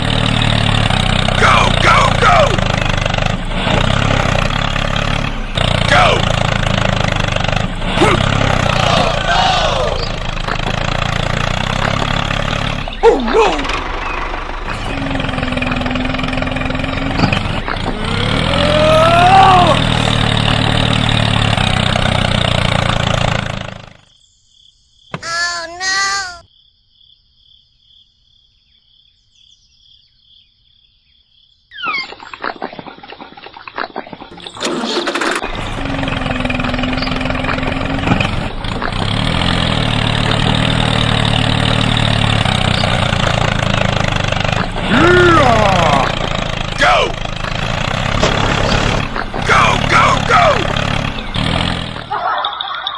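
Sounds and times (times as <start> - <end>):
tractor motor running: 0.0 - 24.1, 34.3 - 52.5.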